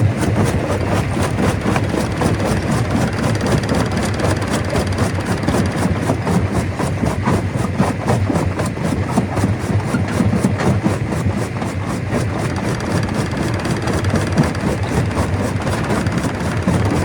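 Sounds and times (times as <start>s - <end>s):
stone crusher machine drone: 12.5s - 17.0s.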